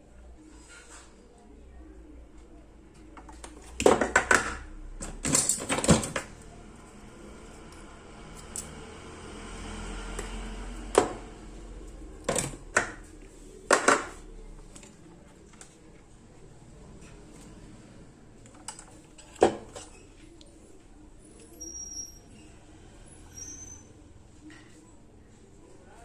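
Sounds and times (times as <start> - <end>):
clatter of hard parts handled: 3.4 - 6.4.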